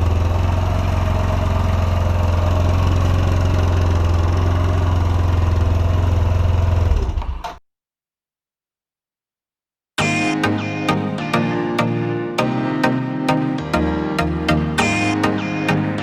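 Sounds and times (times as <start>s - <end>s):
scooter engine idling: 0.0s - 7.2s.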